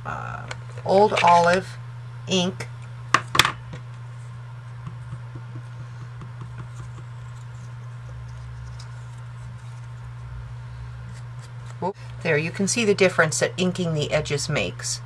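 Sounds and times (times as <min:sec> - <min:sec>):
ink pad dabbing on paper: 0:04.7 - 0:10.2.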